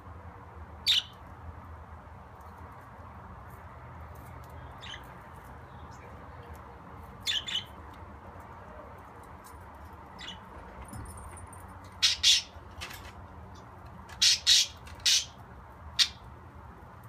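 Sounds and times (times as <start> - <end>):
budgerigar chirps and squawks: 0.8 - 1.2, 7.2 - 7.8, 12.0 - 12.6, 14.2 - 15.4, 16.0 - 16.2.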